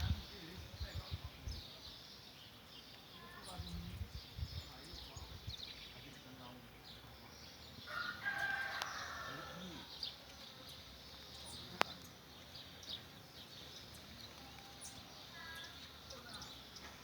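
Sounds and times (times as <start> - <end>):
small birds chirping: 0.0 - 17.0
rooster crowing: 7.9 - 9.9.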